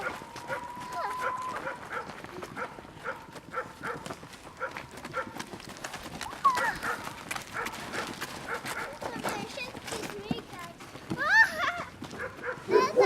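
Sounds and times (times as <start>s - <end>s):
puppy yelp: 0.0s - 2.1s, 6.4s - 7.7s.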